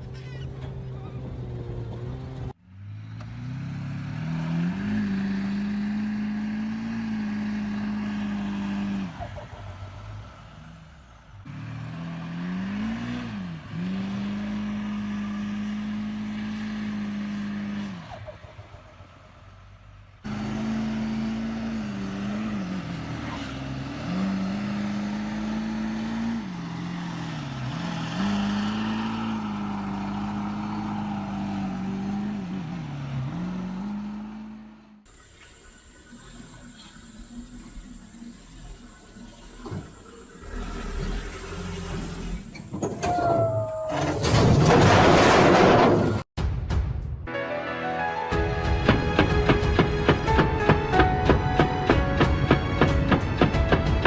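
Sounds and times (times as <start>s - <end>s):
tractor engine under load: 48.6s - 54.0s.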